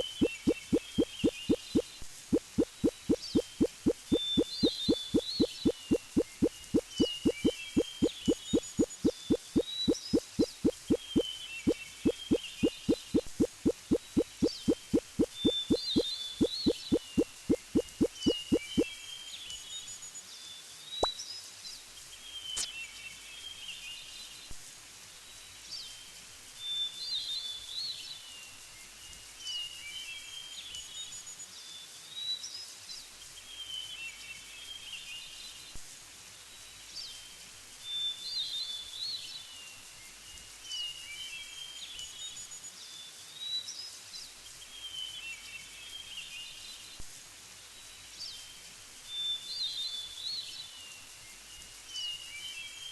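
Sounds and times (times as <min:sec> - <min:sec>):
bird chirping: 0:00.0 - 0:18.9
outdoor background hiss: 0:00.0 - 0:52.9.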